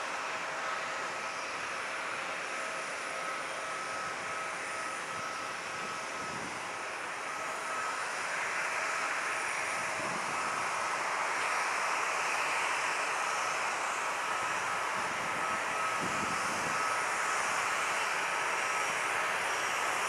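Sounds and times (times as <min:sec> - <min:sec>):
jet engines running: 0:00.0 - 0:20.0.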